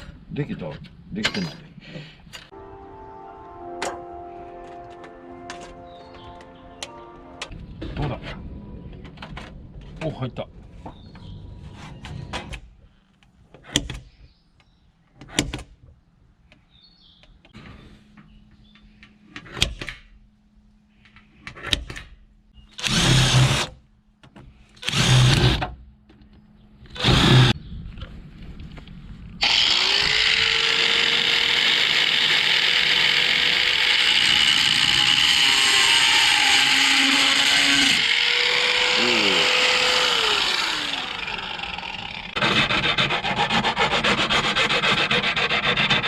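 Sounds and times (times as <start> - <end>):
handheld power tool motor: 22.8 - 23.7, 24.8 - 25.6, 27.0 - 27.5, 29.4 - 46.0.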